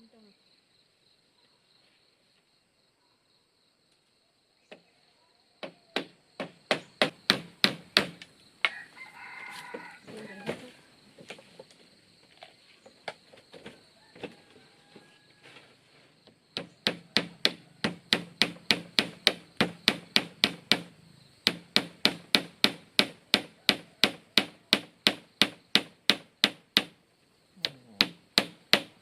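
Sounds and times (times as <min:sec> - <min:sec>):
hand tool striking wood: 0:05.6 - 0:08.8, 0:16.6 - 0:27.0, 0:27.6 - 0:29.0.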